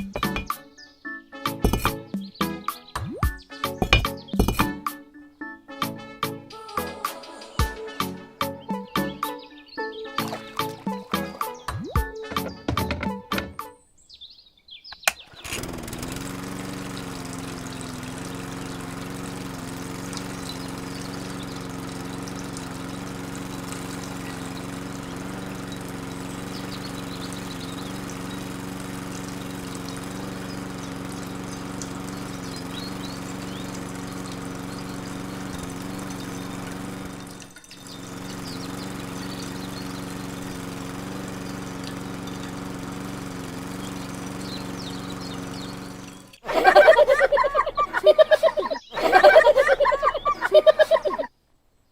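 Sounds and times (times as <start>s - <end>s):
water pouring and splashing: 10.2s - 12.9s, 15.4s - 26.7s, 27.3s - 39.9s
small electric motor running: 15.3s - 51.3s.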